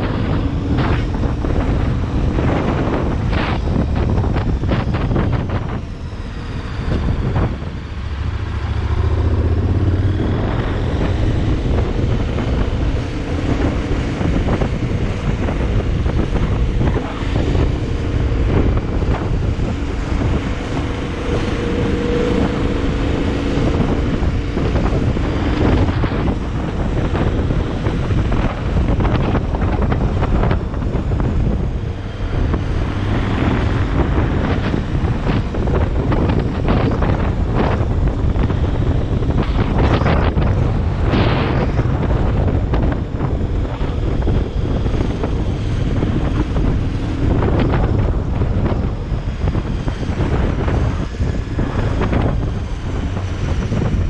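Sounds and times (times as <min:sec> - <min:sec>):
vehicle engine running: 0:00.0 - 0:54.0
wind buffeting microphone: 0:00.0 - 0:54.0.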